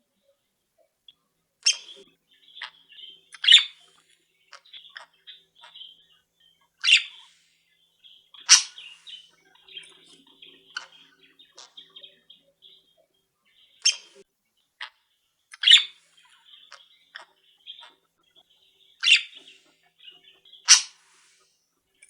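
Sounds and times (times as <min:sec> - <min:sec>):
pet birds twittering: 0:01.1 - 0:14.2, 0:14.8 - 0:22.0
loud sharp bird calls: 0:01.6 - 0:13.0, 0:14.8 - 0:21.5.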